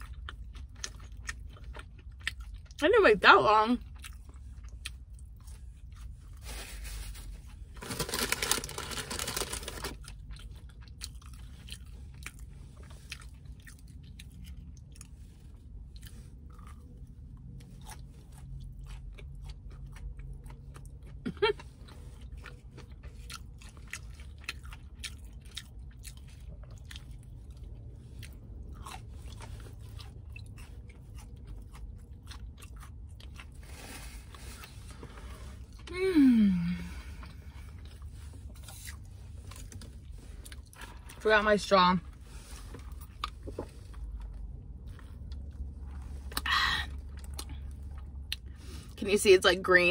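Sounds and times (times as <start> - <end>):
wet chewing with crackles: 0.0 - 36.0, 36.8 - 49.0
biting and crunching: 7.5 - 15.1, 15.8 - 36.0.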